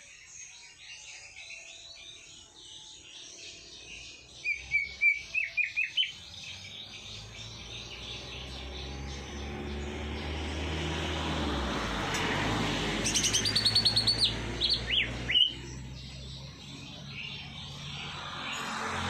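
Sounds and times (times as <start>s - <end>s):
songbirds chirping: 0.0s - 19.0s
bird whistling sharp notes: 4.4s - 6.2s, 13.1s - 15.6s.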